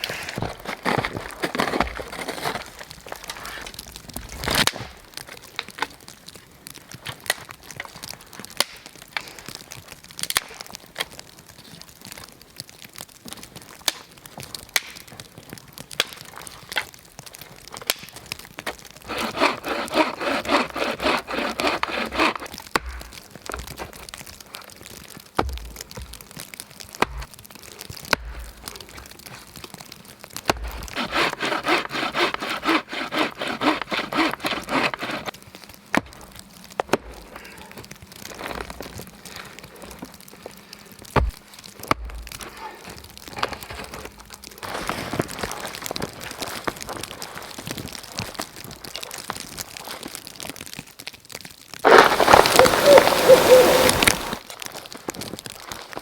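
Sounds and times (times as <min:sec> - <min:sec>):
wood cracking and snapping: 0:00.0 - 0:56.0
saw cutting wood: 0:19.1 - 0:22.5, 0:30.6 - 0:35.3, 0:51.8 - 0:54.4.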